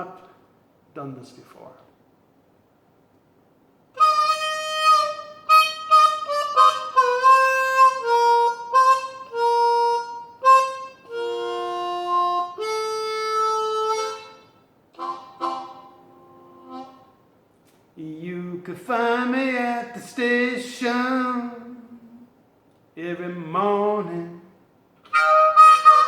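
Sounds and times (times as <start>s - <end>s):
harmonica playing blues: 4.0s - 17.2s, 25.1s - 26.0s.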